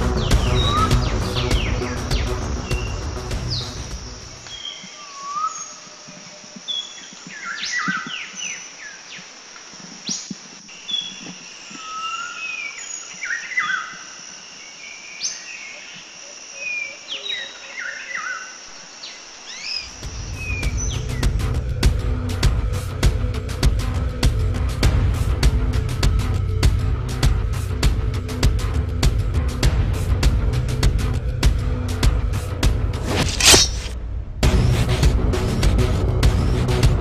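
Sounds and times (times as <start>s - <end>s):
background music: 0.0s - 4.5s, 19.9s - 37.0s
birds chirping and whistling: 0.0s - 8.7s, 10.1s - 14.2s, 19.5s - 21.7s.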